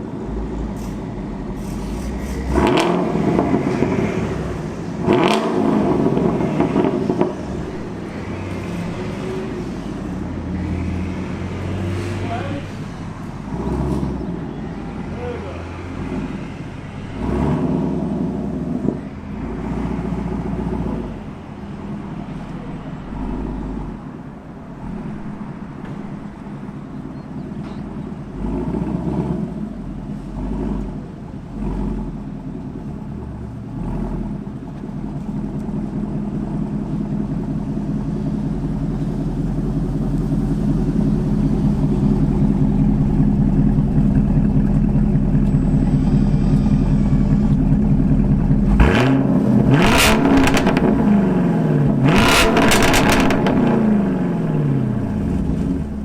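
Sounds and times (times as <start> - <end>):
deep engine running: 0.0 - 56.0
car engine throttle blips: 16.0 - 56.0.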